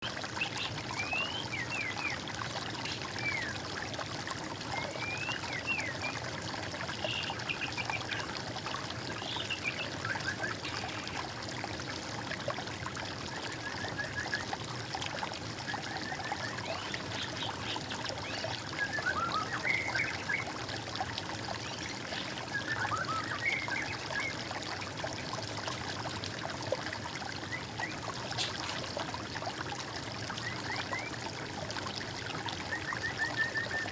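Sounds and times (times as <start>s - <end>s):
stream trickling: 0.0s - 33.9s.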